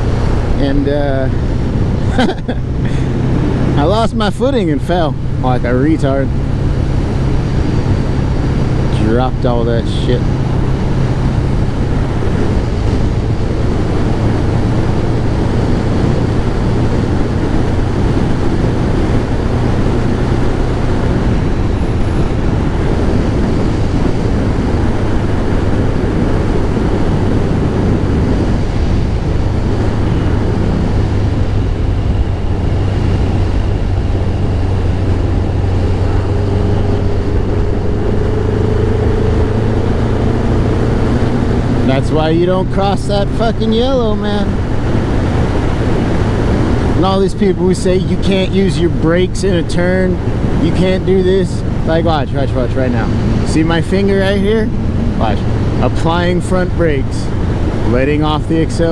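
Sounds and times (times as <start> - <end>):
motorcycle engine running: 0.0 - 58.8
wind and road noise: 0.0 - 58.9.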